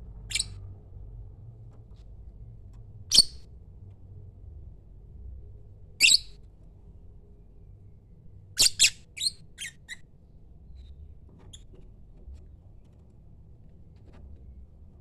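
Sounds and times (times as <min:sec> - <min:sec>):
bird high-pitched calls: 0:00.3 - 0:00.6, 0:03.1 - 0:03.4, 0:06.0 - 0:06.4, 0:08.6 - 0:10.0.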